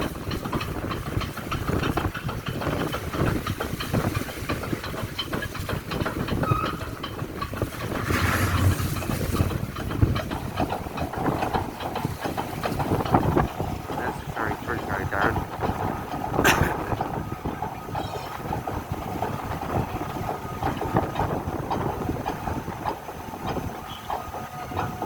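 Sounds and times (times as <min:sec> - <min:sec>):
low rumble: 0:07.6 - 0:10.4
loud rushing noise: 0:07.8 - 0:09.6.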